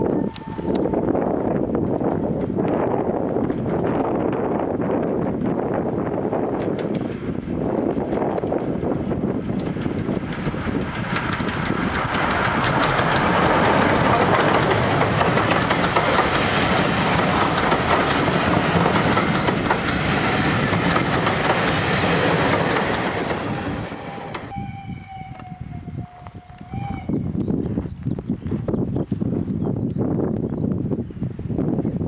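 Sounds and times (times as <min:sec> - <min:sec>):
faint steam whistle: 0:00.0 - 0:01.1, 0:23.5 - 0:27.2
train wheels clattering over rails: 0:06.4 - 0:24.5.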